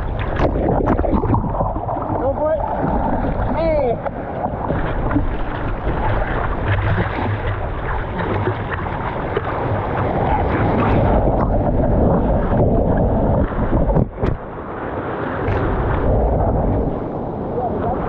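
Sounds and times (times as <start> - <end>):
surf water rushing: 0.0 - 18.0
wind buffeting microphone: 0.0 - 18.0.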